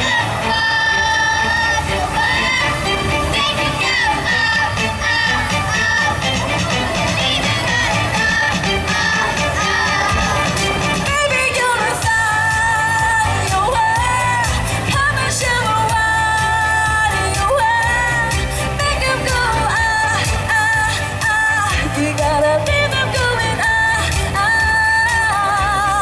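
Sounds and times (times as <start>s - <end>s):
pop song singing: 0.0s - 26.0s
steady bass beat: 0.0s - 26.0s.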